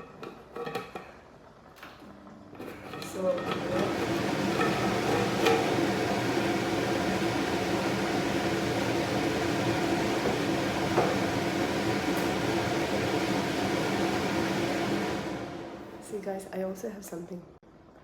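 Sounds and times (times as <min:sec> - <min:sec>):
fan motor whirring: 0:02.5 - 0:16.3.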